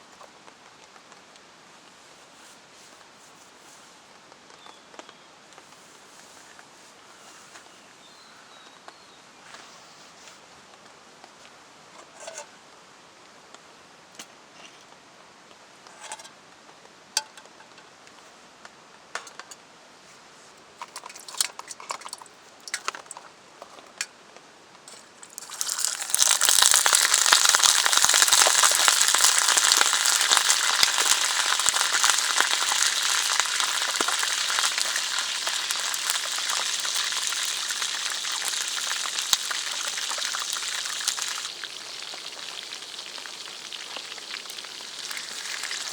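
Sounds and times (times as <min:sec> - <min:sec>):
food sizzling in a pan: 0:25.3 - 0:45.9.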